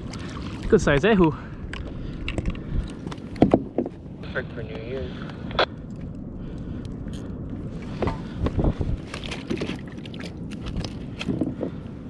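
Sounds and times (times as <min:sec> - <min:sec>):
wind noise: 0:00.0 - 0:12.0
knocks and thuds on kayak: 0:03.4 - 0:04.0.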